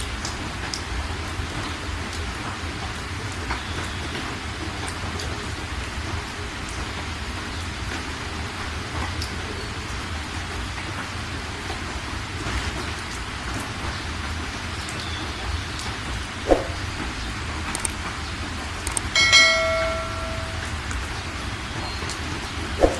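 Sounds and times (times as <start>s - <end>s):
heavy rain: 0.0s - 22.9s
sharp clink: 19.2s - 20.9s.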